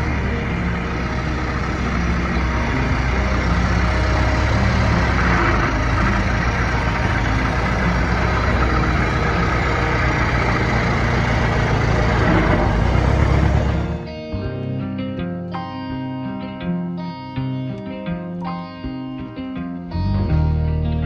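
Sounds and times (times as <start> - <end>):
old truck engine running: 0.0 - 14.1.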